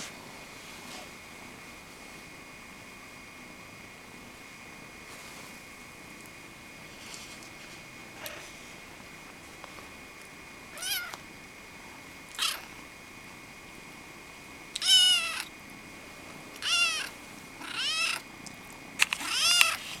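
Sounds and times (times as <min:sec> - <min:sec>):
kittens meowing: 0:10.7 - 0:11.2, 0:12.3 - 0:12.8, 0:14.7 - 0:15.5, 0:16.6 - 0:18.2, 0:19.2 - 0:19.8.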